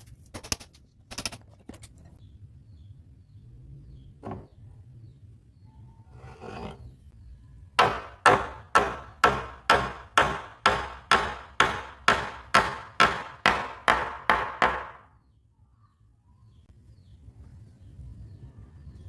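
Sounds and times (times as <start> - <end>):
hammering on wood: 7.8 - 15.1.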